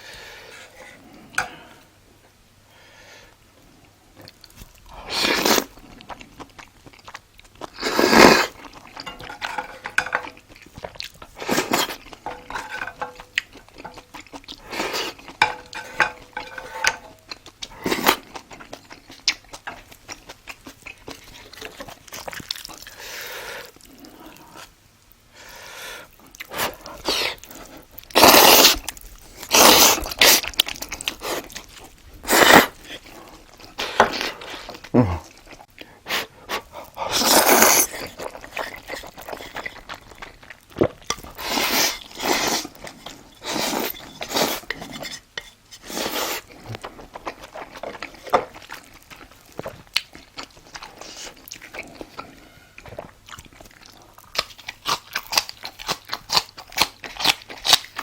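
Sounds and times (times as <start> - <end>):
chewing and mouth noises: 3.7 - 24.8, 25.5 - 58.0
cutlery clinking against dishes: 9.0 - 10.4, 12.2 - 14.0.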